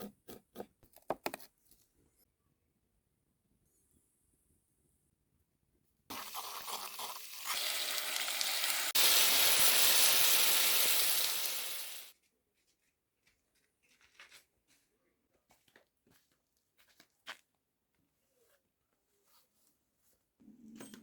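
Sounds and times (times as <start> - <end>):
water running in a stream: 6.1 - 12.1.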